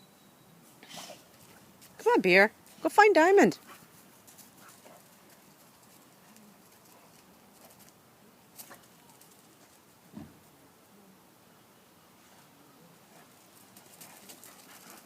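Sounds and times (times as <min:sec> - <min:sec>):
low thump: 0:10.1 - 0:10.4.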